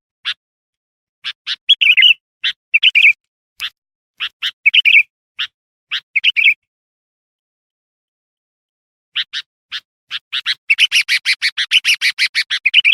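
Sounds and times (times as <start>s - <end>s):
bird chirping and warbling: 1.2s - 6.7s, 9.1s - 12.9s.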